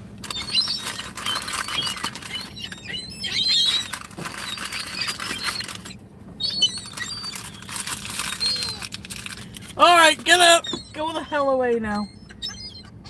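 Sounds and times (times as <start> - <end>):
wings flapping and tapping: 0.2 - 10.6
seagulls squeaky calls: 0.2 - 13.0.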